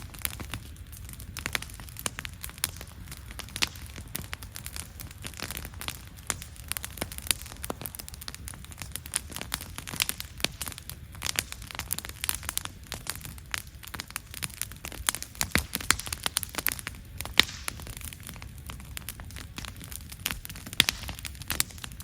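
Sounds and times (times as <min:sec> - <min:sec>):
campfire crackling and popping: 0:00.0 - 0:22.0
low fire rumble: 0:00.0 - 0:22.0.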